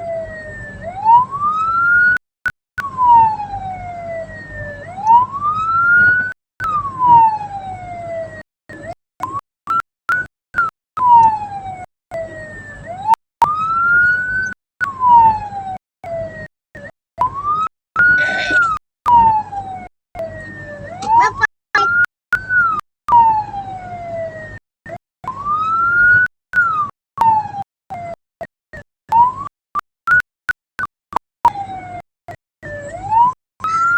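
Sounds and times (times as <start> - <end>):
vehicle siren wailing: 2.8 - 8.9, 11.0 - 22.0, 22.6 - 24.6.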